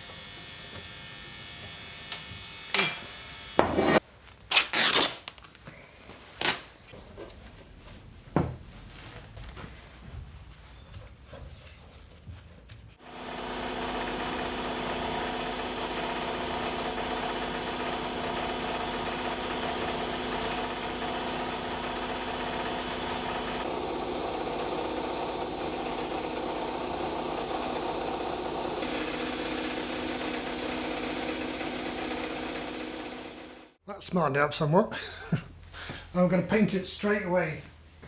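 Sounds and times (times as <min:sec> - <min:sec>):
machine buzzing hum and hiss: 0:00.0 - 0:04.0.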